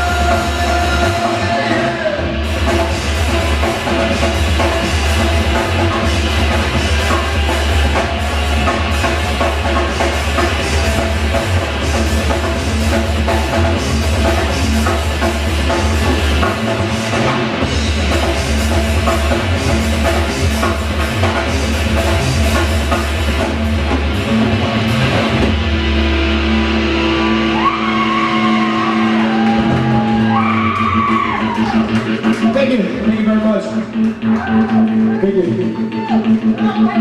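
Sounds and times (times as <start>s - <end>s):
rock band playing loud: 0.0s - 37.0s
guitar note sliding upward: 24.9s - 32.2s.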